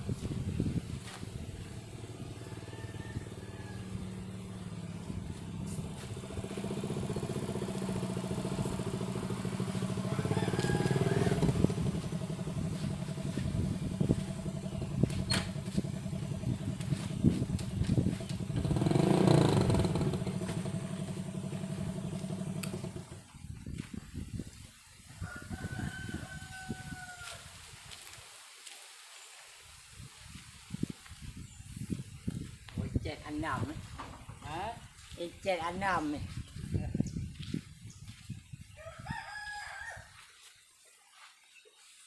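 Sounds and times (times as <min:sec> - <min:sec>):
vehicle engine droning: 0:00.0 - 0:23.5.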